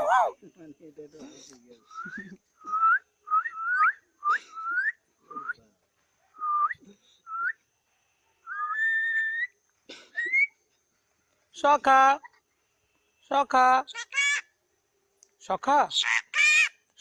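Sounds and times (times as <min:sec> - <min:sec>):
bird whistling: 0:02.0 - 0:05.5, 0:08.4 - 0:09.6.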